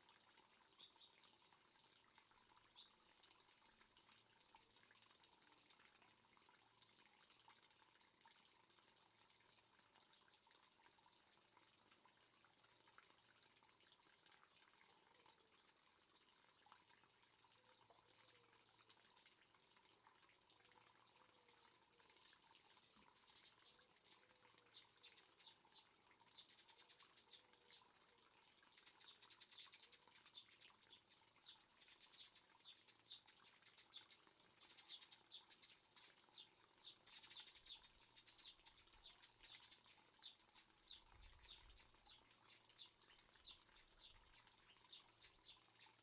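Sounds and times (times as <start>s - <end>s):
small birds chirping and trilling: 0.1s - 6.2s, 21.0s - 46.0s.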